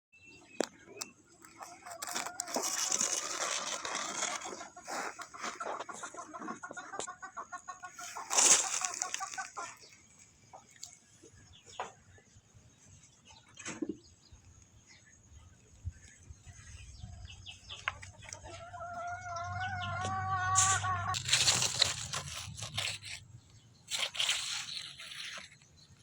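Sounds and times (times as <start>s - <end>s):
chickens clucking and squawking: 0.8s - 12.0s, 16.7s - 23.2s.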